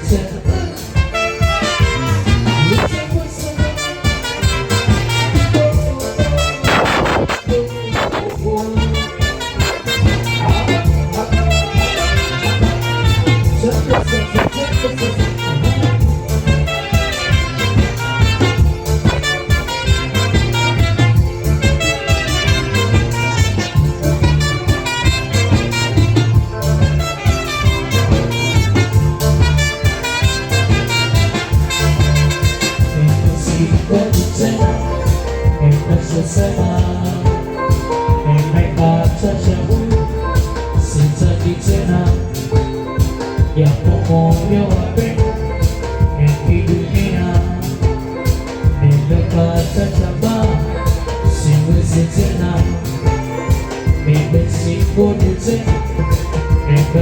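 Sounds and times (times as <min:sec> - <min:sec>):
bass line: 0:00.0 - 0:57.0
live band playing: 0:00.0 - 0:57.0
steady drum beat: 0:00.0 - 0:57.0.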